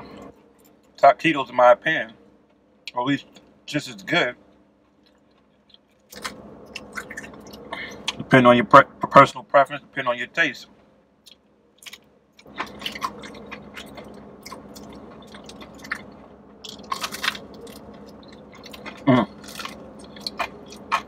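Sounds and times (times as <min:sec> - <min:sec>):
crunching pastry crust: 0:04.8 - 0:08.2, 0:11.3 - 0:21.0.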